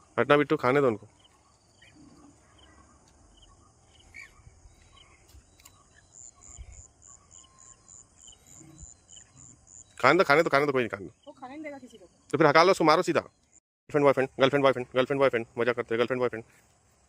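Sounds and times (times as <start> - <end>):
cricket chirping: 0.0 - 17.0
faint chirps: 0.7 - 13.6.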